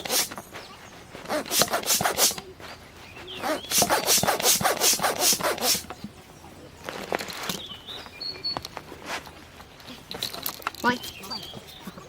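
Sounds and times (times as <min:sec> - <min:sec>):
quick rubbing strokes: 0:00.0 - 0:05.9
handling sounds: 0:00.0 - 0:06.2, 0:06.8 - 0:12.0.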